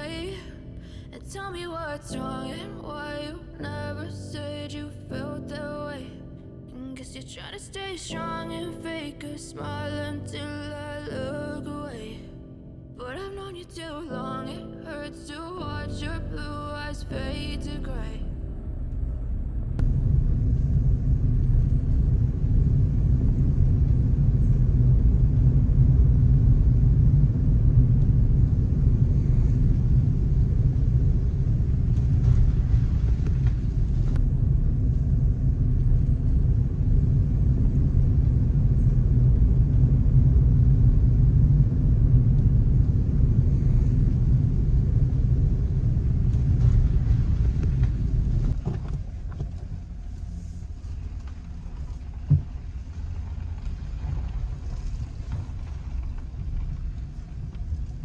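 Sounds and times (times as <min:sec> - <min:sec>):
loud low rumble: 0:15.6 - 0:58.0.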